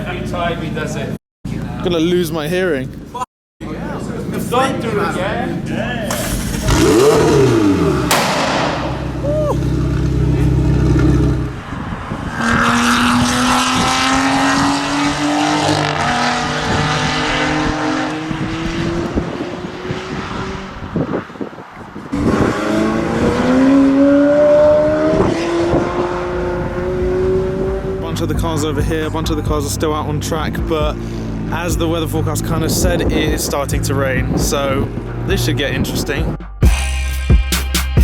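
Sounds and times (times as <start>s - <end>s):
supercar engines accelerating: 3.6s - 36.3s.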